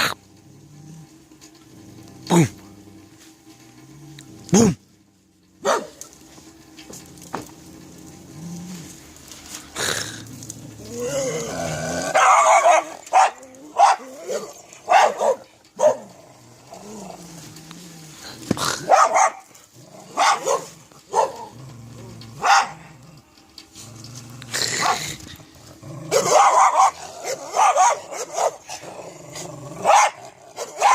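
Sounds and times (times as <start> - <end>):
dog barking: 5.6 - 6.0, 12.1 - 16.1, 18.8 - 19.5, 20.1 - 21.5, 22.4 - 22.9, 26.1 - 28.6, 29.8 - 30.9.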